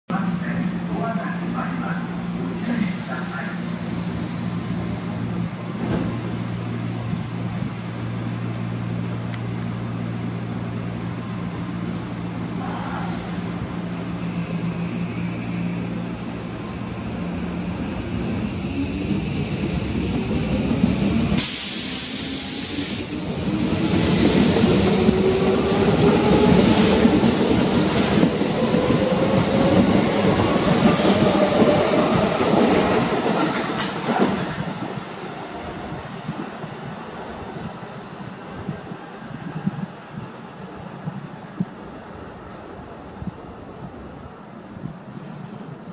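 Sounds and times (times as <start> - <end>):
sudden hiss: 21.4 - 23.1.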